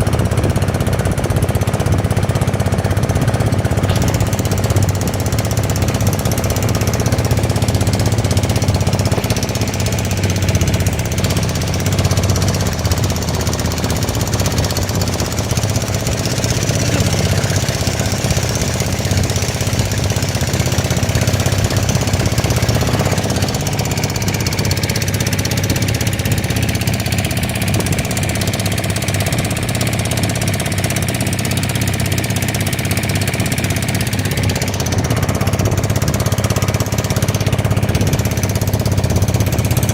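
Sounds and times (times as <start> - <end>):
motorboat engine running: 0.0 - 39.9.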